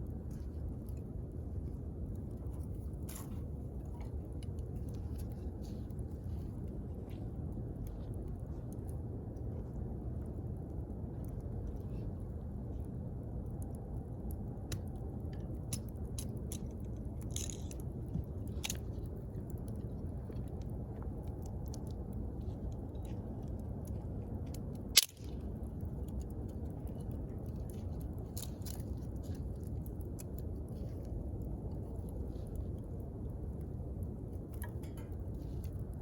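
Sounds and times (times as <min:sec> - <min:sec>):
bonfire flame rumble: 0:00.0 - 0:36.0
fire crackles and pops: 0:00.0 - 0:36.0.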